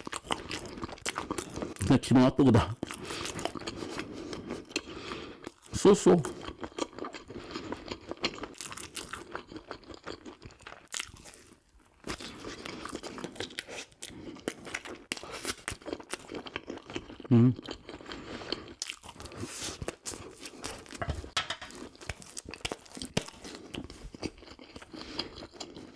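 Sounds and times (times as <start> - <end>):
crunchy bites and wet chewing: 0.0 - 1.8, 2.8 - 25.9
mouth clicks and smacks: 22.0 - 23.9.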